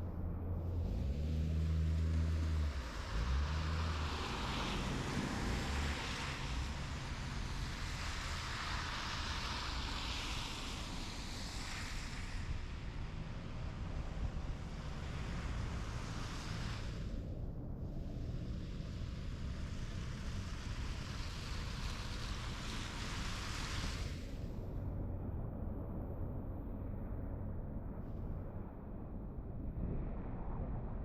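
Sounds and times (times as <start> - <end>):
traffic: 0.0 - 28.6
vehicle engine hum: 0.0 - 31.0.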